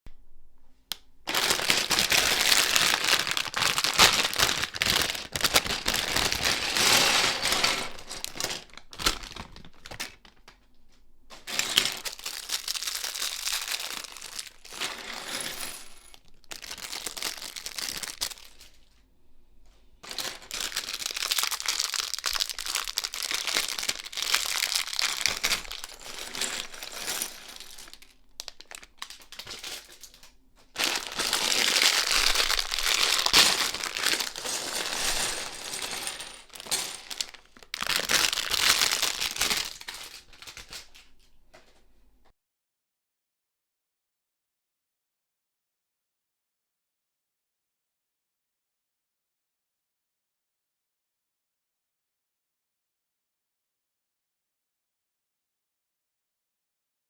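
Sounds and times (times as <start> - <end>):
plastic bag crinkling: 1.3 - 10.6, 11.3 - 18.9, 20.0 - 41.2.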